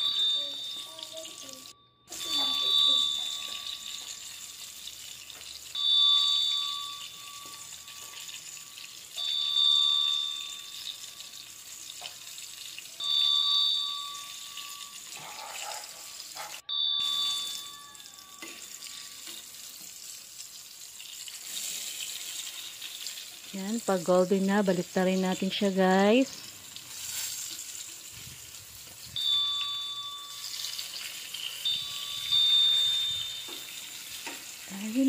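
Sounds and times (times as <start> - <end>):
bright ding chime: 0.0 - 4.4, 5.8 - 11.5, 13.0 - 15.9, 16.6 - 19.4, 29.2 - 35.0
food sizzling in oil: 0.0 - 35.0.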